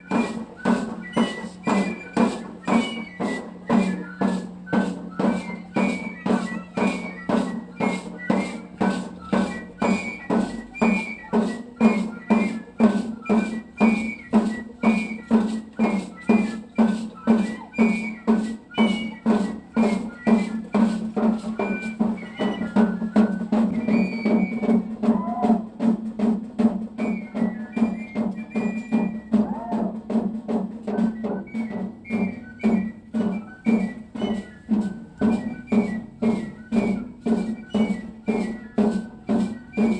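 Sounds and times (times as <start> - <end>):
high flute melody: 0.0 - 25.9, 27.0 - 30.2, 30.9 - 39.9
drum beat: 0.0 - 39.9.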